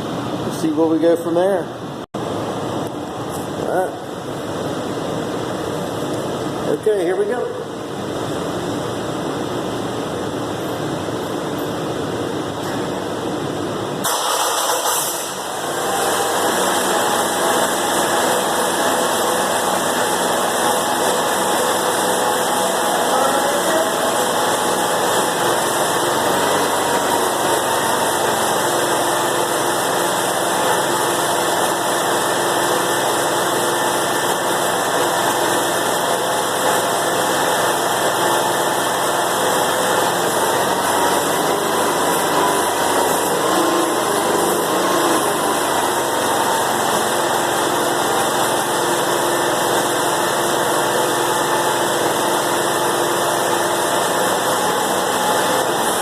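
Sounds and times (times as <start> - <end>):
skid steer engine running: 14.0 - 56.0.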